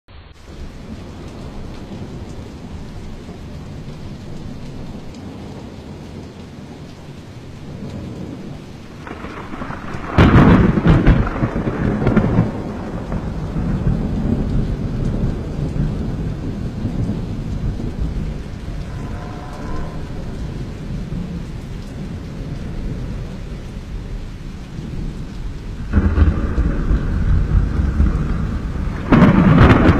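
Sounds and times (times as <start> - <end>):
steady rain: 0.1 - 29.9
thunderclap with rumbling: 7.6 - 29.9.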